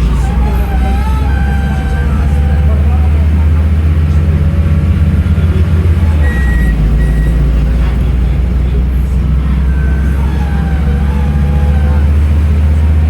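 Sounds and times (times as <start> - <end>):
bus diesel engine running: 0.0 - 13.0
short high beeps: 6.2 - 7.4.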